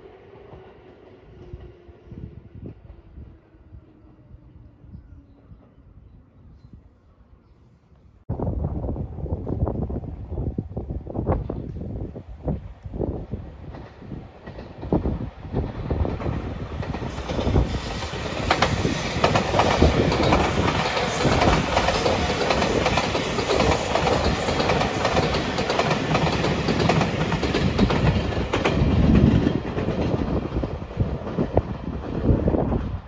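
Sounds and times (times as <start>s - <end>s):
electric train passing: 0.0s - 6.5s, 8.3s - 33.0s
wheels clicking over rail joints: 13.6s - 32.9s.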